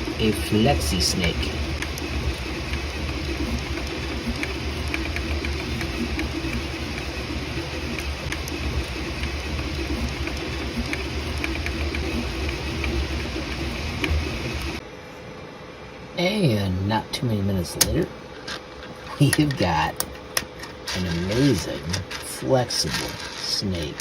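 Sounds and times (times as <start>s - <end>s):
print head ticking: 0.0s - 14.8s.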